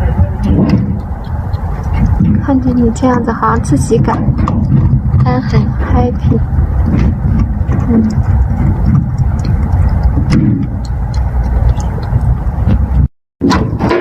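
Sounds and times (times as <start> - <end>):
wind buffeting microphone: 0.0 - 14.0
faint clicks: 7.7 - 12.8.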